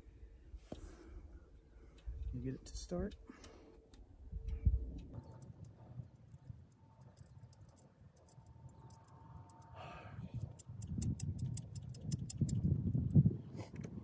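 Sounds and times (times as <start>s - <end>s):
hand ratchet clicking: 10.4s - 12.7s.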